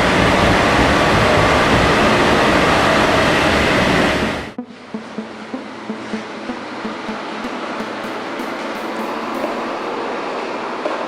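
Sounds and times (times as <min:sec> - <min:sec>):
music with plucked notes: 0:00.0 - 0:02.9, 0:04.6 - 0:10.0
car engine rushing on dyno: 0:00.0 - 0:04.6.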